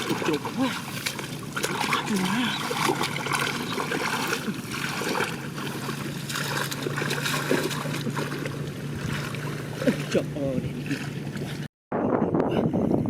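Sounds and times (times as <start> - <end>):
steady low hum: 0.0 - 11.7
water splashing in mud: 0.0 - 11.7.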